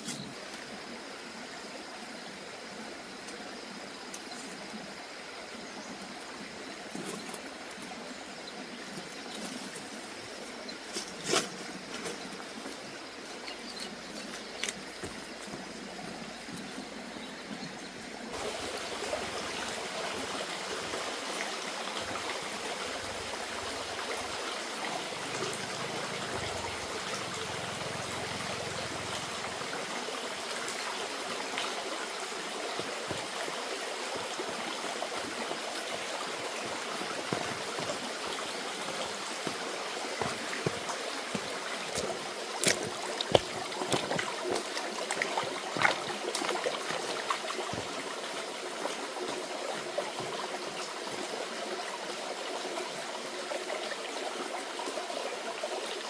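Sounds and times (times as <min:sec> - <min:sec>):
running water flowing: 0:11.8 - 0:56.0.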